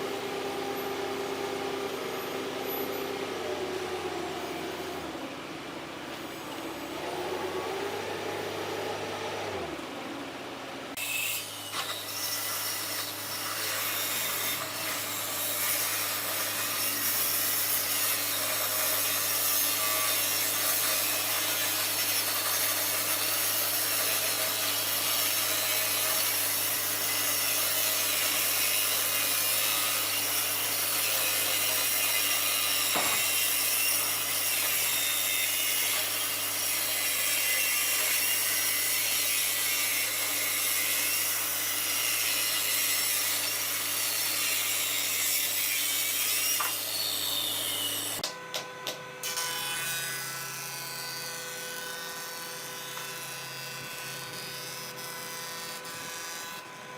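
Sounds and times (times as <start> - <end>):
motor hum: 0.0 - 11.0
power tool rasping wood: 11.0 - 56.9.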